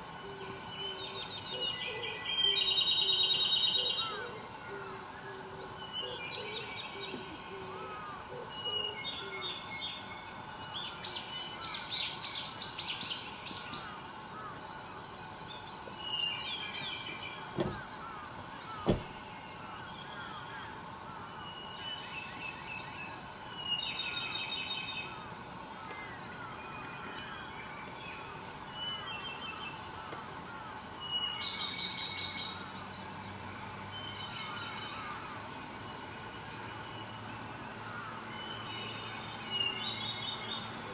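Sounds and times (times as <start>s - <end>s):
sharp knocks: 17.6s - 17.9s, 18.8s - 19.2s.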